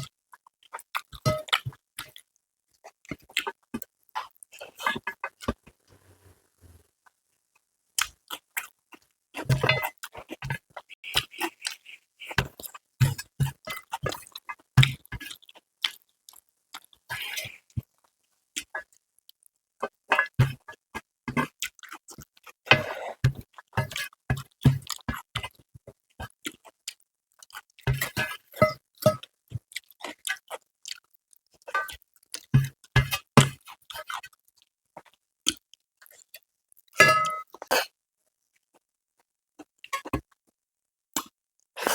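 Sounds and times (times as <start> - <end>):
wet chewing: 8.0 - 9.1, 9.7 - 17.9, 21.5 - 28.4, 29.1 - 32.9, 33.6 - 37.9.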